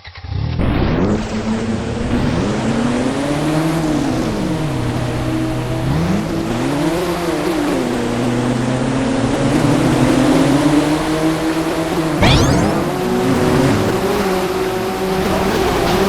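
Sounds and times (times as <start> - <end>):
engine revving: 0.2 - 16.0.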